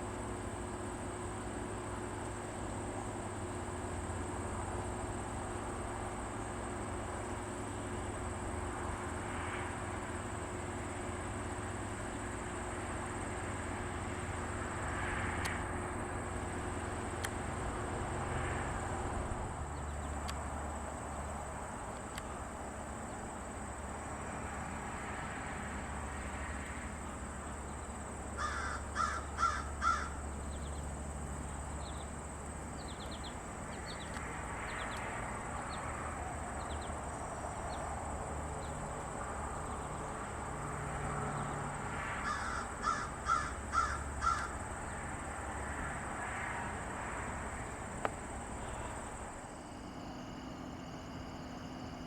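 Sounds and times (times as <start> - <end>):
high-pitched insect drone: 22.4 - 52.0
crow cawing: 28.4 - 30.2, 42.2 - 44.6.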